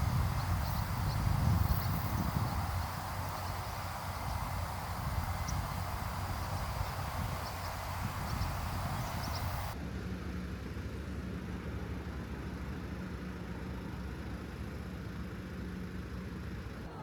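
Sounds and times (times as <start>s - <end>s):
car driving drone: 0.0s - 9.8s
faint high chirps: 0.0s - 9.8s.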